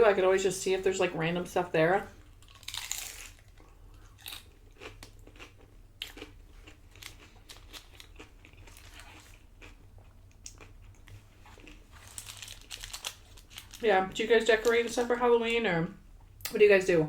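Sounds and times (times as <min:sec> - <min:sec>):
person chewing crunchy chips: 0:02.2 - 0:13.8.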